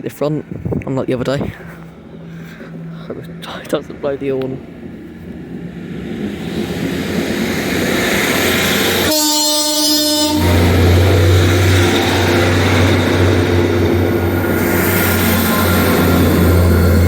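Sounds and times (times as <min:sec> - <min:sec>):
diesel engine drone: 0:00.4 - 0:17.0
train horn: 0:09.0 - 0:13.2.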